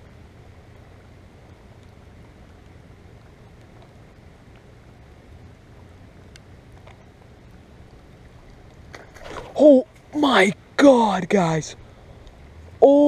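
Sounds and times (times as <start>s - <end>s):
faint ticks: 0.0s - 9.1s, 11.8s - 12.8s
light rain on water: 0.0s - 13.0s.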